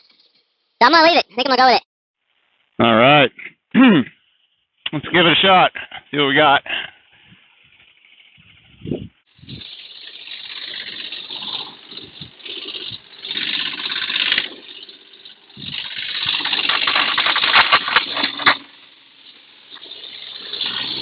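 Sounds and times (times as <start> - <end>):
mini excavator tracks running: 7.4 - 21.0.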